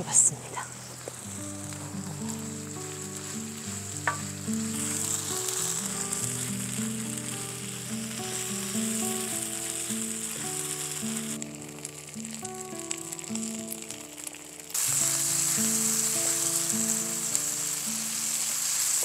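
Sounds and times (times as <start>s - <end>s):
soft background music: 0.0s - 14.4s
food sizzling in a pan: 0.0s - 19.0s.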